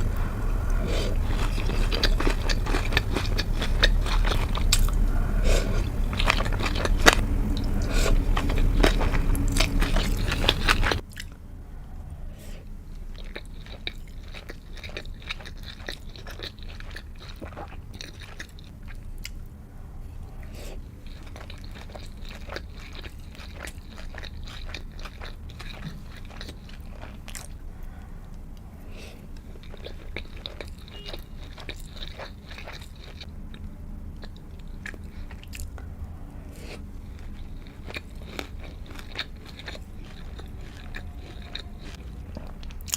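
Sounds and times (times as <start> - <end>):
wet chewing and bites: 0.0 - 11.4, 36.7 - 42.9.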